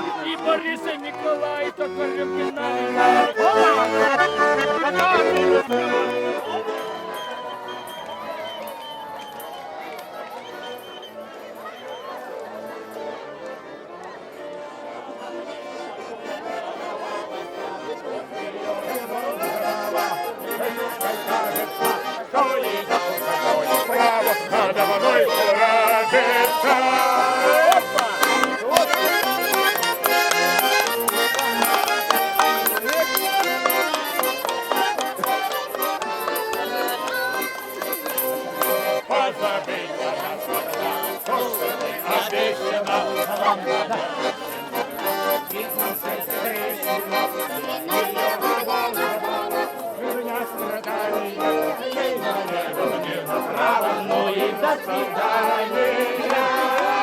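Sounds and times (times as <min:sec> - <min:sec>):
button accordion folk tune: 0:00.0 - 0:57.0
voices: 0:00.0 - 0:57.0
person singing: 0:18.8 - 0:57.0.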